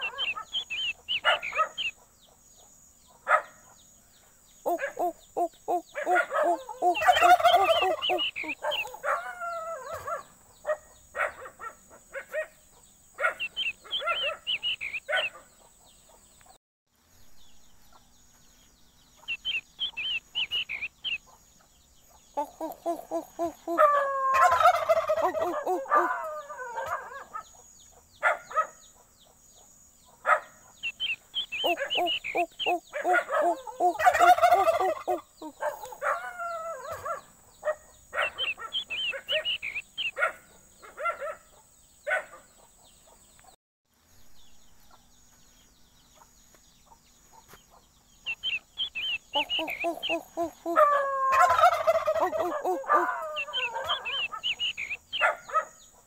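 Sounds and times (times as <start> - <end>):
fowl rattling gobble calls: 0.0 - 2.0, 4.7 - 10.2, 13.2 - 15.4, 19.3 - 21.2, 22.4 - 27.5, 30.8 - 37.1, 38.2 - 40.2, 48.3 - 55.4
fowl chirps and clucks: 0.0 - 3.9, 4.6 - 16.6, 19.1 - 43.6, 46.0 - 56.0.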